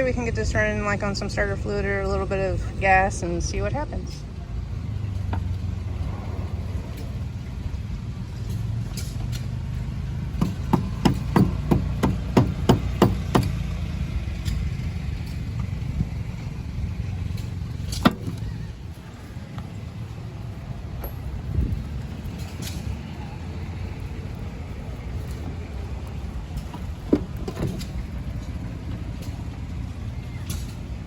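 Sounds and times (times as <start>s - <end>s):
steady low rumble: 0.0s - 31.0s
sharp knocks: 10.4s - 13.6s.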